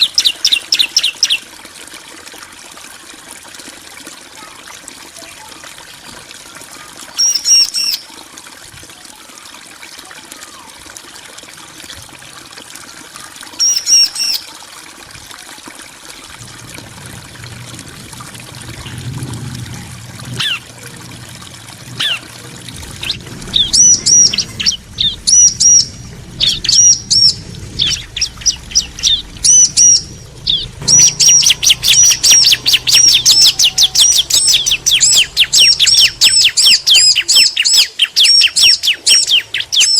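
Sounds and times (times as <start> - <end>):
birds chirping: 0.0 - 1.4, 16.4 - 39.9.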